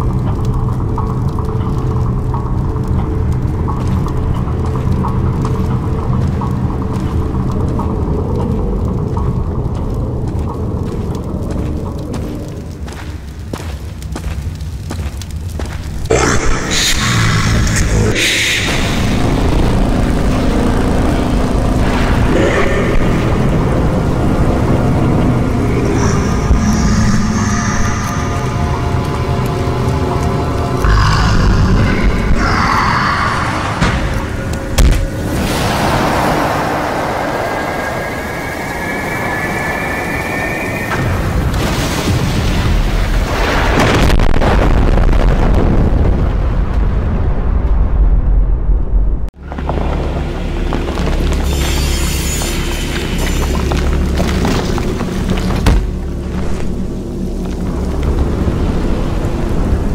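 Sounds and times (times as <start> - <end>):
low mechanical rumble: 17.0 - 42.6
explosion with deep rumble: 30.8 - 49.3.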